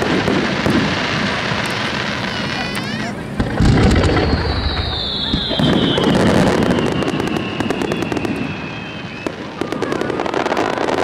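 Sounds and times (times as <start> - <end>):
crackling firework bursts: 0.0 - 11.0
firework whistle: 0.0 - 11.0
low rumble: 3.3 - 5.6.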